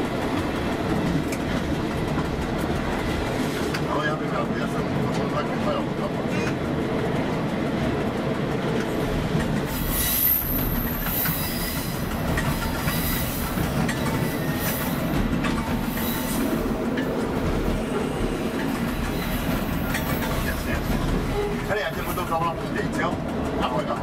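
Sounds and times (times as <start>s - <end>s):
railbus running noise: 0.0s - 24.0s
high wheel squeal: 9.7s - 12.0s, 12.8s - 15.0s.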